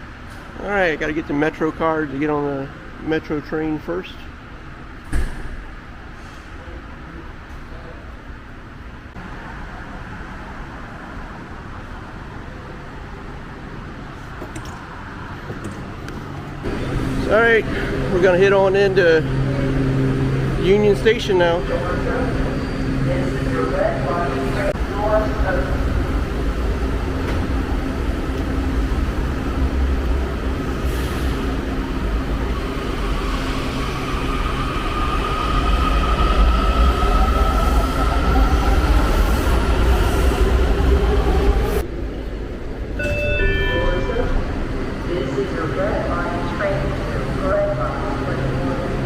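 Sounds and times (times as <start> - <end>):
station hum and hiss: 0.0 - 35.4
subway train rumbling: 0.0 - 49.0
train whine: 6.0 - 49.0.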